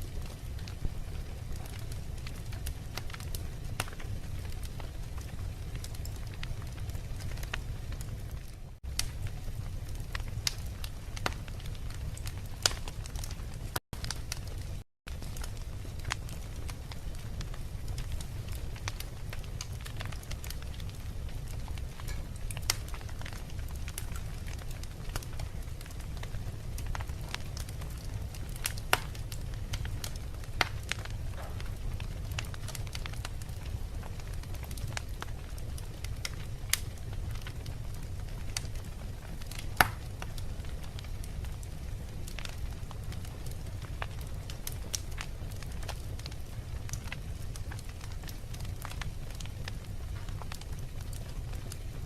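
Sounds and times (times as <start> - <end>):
fire flames rumbling: 0.0 - 52.0
logs crackling and popping: 0.0 - 52.0.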